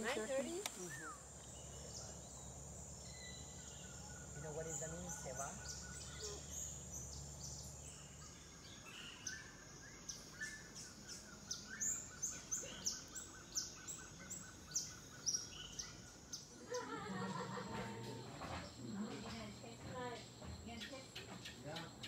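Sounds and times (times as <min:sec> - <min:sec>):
voices: 0:00.0 - 0:02.4, 0:04.2 - 0:06.7, 0:16.6 - 0:22.0.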